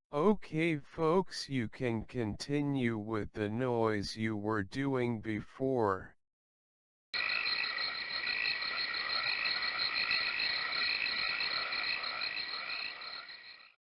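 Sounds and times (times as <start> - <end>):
frogs calling: 7.2 - 13.8.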